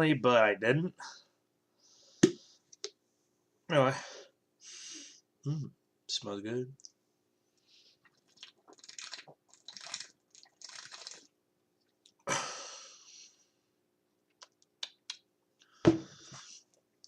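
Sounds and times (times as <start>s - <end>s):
person slurping a drink: 8.0s - 11.3s.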